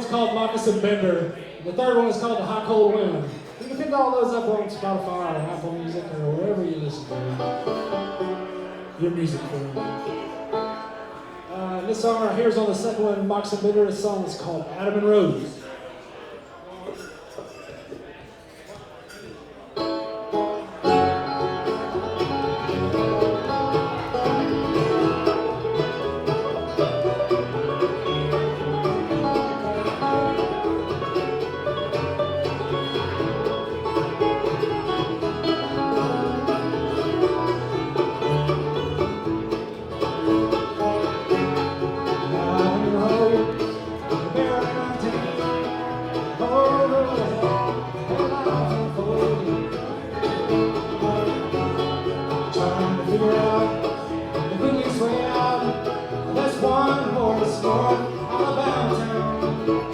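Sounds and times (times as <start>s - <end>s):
banjo picking: 0.0s - 15.5s, 19.1s - 59.9s
bluegrass band playing: 0.0s - 16.5s, 19.5s - 59.9s
guitar picking: 6.4s - 12.0s, 19.8s - 59.9s.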